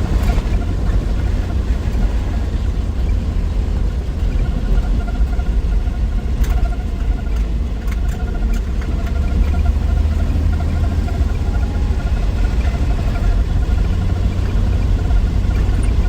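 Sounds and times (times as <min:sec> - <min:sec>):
car engine rumble while driving: 0:00.0 - 0:16.0
road noise: 0:00.0 - 0:16.0.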